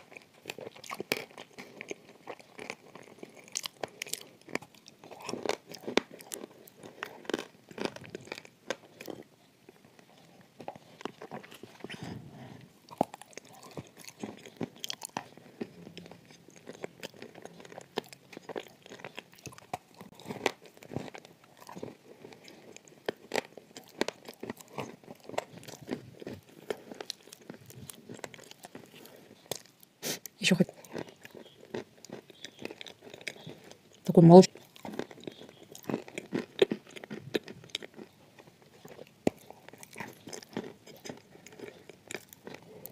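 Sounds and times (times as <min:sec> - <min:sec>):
person crunching dry clay: 0:30.4 - 0:42.9.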